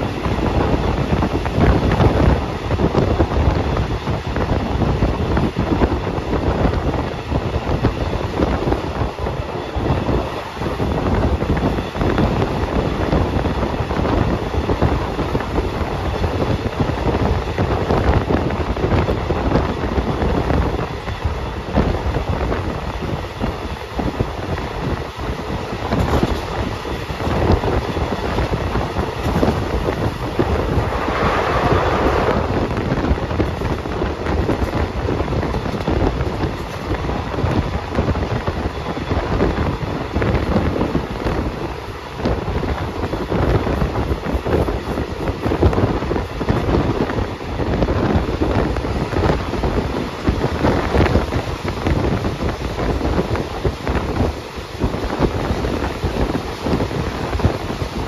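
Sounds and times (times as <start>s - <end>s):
train wheels rumbling and rattling: 0.0s - 58.0s
wind buffeting microphone: 0.0s - 58.0s
rush of noise: 28.5s - 35.1s.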